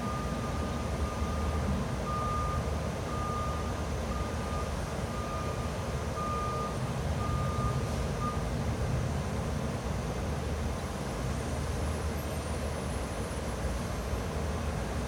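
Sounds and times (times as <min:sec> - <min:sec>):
reversing alarm beeping: 0:00.0 - 0:08.5.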